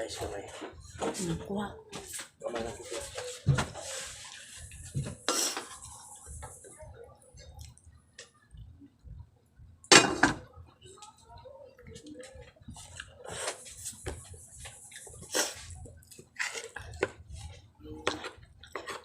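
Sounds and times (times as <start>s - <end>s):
wet chewing: 7.5s - 8.0s.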